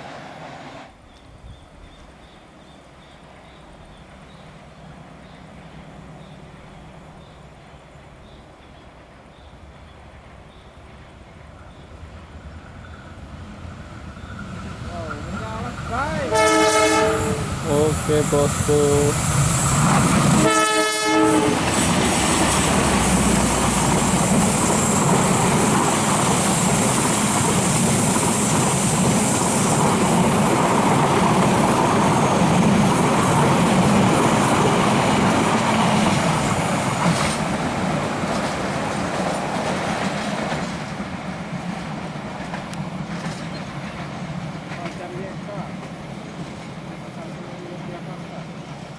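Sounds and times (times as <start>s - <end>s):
train wheels clattering on rails: 10.2s - 48.9s
locomotive horn blast: 16.2s - 18.4s, 20.4s - 21.7s.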